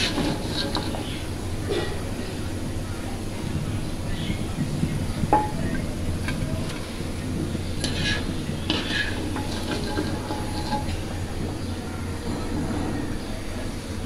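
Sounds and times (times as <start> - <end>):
skimmer scraping and clinking on pan: 0.0 - 2.0, 5.2 - 13.3
fritters sizzling in hot oil: 0.0 - 2.6, 3.2 - 12.3.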